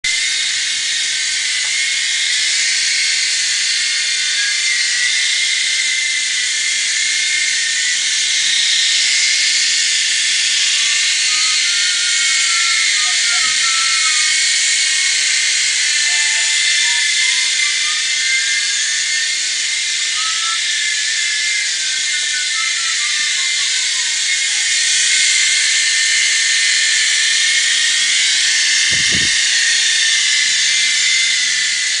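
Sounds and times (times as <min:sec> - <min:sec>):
toy helicopter motor whine: 0:00.1 - 0:32.0
short low thump: 0:28.9 - 0:29.4.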